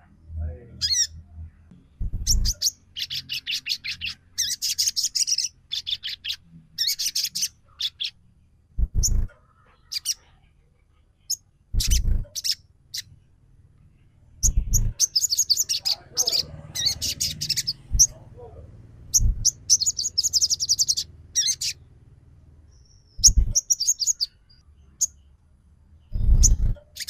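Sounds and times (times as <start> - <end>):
bird chirping in sharp bursts: 0.8 - 1.2, 2.0 - 8.2, 8.8 - 10.3, 11.2 - 13.1, 14.4 - 22.0, 22.7 - 25.4, 26.0 - 27.0
low thuds: 1.8 - 2.6, 8.8 - 9.3, 11.7 - 12.4, 14.4 - 15.0, 17.8 - 18.2, 19.1 - 19.6, 23.2 - 23.6.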